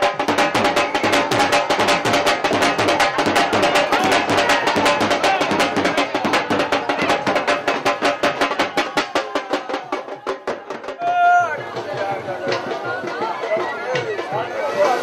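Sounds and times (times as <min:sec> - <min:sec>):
fast steady drumming: 0:00.0 - 0:15.0.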